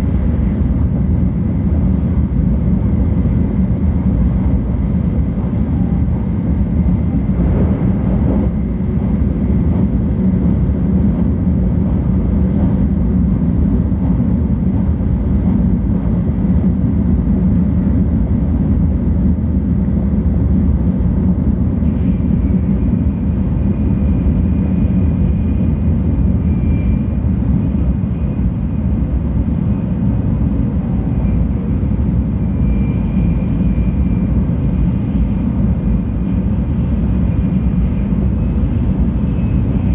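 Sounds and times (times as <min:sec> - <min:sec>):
train cabin rumble: 0:00.0 - 0:39.9
faint high whine: 0:21.8 - 0:29.2, 0:30.0 - 0:39.9.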